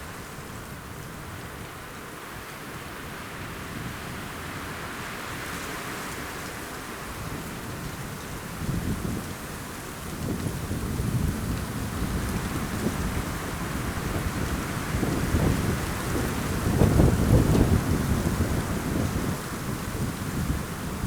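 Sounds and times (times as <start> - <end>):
wind rumble on microphone: 7.1 - 21.0.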